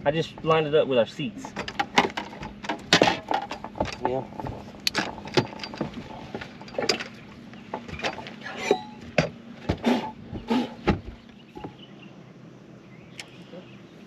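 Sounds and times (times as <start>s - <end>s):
steady low hum: 0.0s - 14.0s
irregular knocks and clicks: 1.4s - 8.4s.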